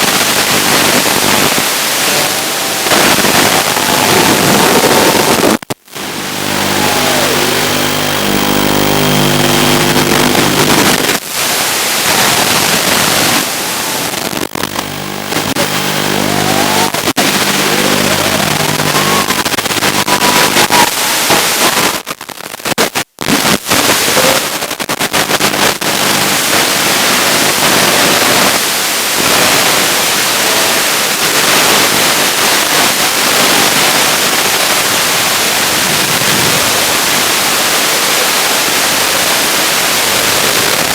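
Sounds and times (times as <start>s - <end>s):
video link hiss: 0.0s - 40.9s
quadcopter motors whining: 6.1s - 10.0s, 14.9s - 21.5s.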